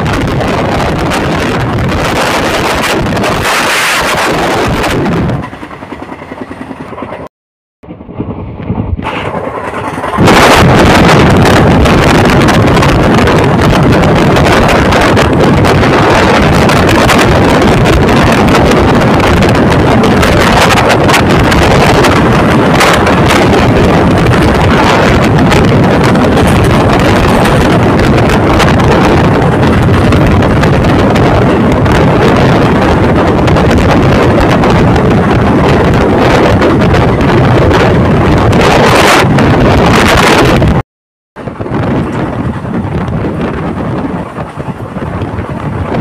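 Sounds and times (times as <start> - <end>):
wind buffeting the microphone: 0.0 - 7.3, 7.9 - 40.8, 41.4 - 46.0
train coaches running: 8.2 - 39.0, 41.4 - 46.0.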